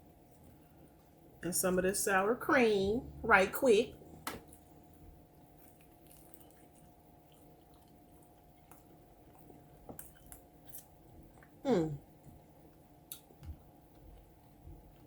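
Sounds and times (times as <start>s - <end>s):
person chewing: 4.4s - 11.6s
person humming mm: 11.6s - 12.0s.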